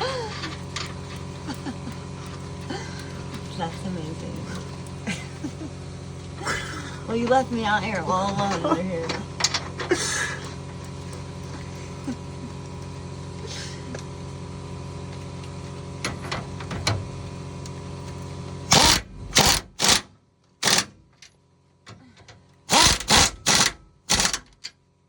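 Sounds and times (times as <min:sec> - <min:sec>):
steady machine hum: 0:00.0 - 0:25.0
power tool driving fasteners: 0:18.1 - 0:21.4, 0:22.6 - 0:24.8.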